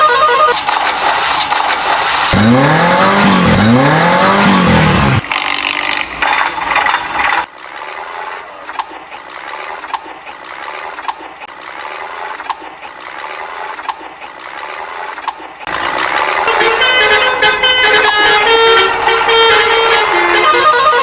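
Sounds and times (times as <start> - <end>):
loud vehicle-like noise: 0.0 - 21.0
rasping ratchet mechanism: 6.2 - 15.7.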